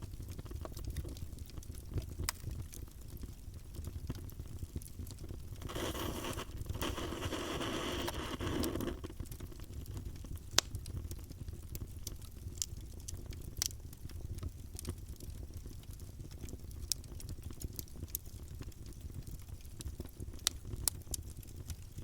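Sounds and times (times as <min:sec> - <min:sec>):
wood campfire crackling: 0:00.0 - 0:22.0
fire hissing: 0:05.6 - 0:09.2.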